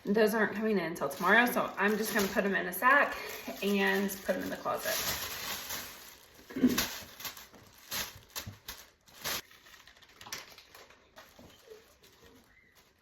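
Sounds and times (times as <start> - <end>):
bag rustling: 1.0 - 10.2.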